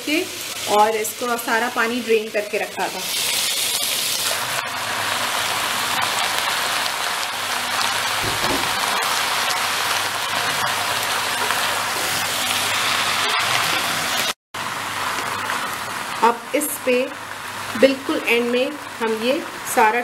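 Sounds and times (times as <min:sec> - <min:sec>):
food sizzling in a wok: 0:00.0 - 0:20.0
low knock: 0:08.2 - 0:09.0.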